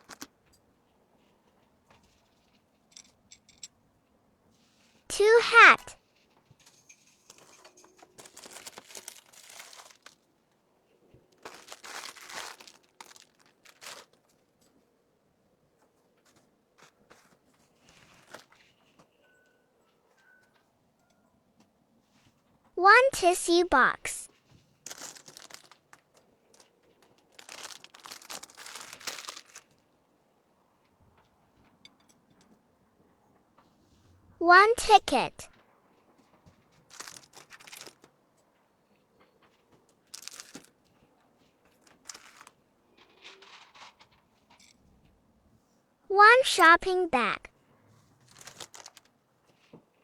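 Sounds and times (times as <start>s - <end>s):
plastic packaging crinkling: 0.0s - 0.3s, 7.3s - 10.3s, 11.3s - 14.4s, 24.8s - 29.8s, 36.8s - 38.1s, 39.9s - 40.9s, 41.7s - 42.6s, 48.2s - 49.1s.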